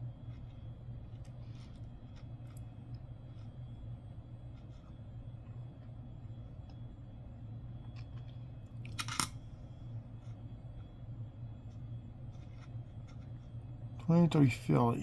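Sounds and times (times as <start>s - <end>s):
steady low hum: 0.0s - 15.0s
coins clicking and clattering: 9.0s - 9.4s.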